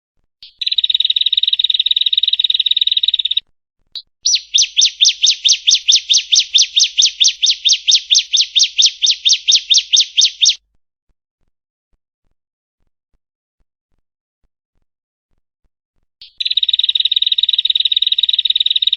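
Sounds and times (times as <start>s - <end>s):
bird singing a fast trill: 0.4s - 3.4s, 4.0s - 10.6s, 16.2s - 18.9s
bird sharp repeated notes: 4.0s - 10.6s.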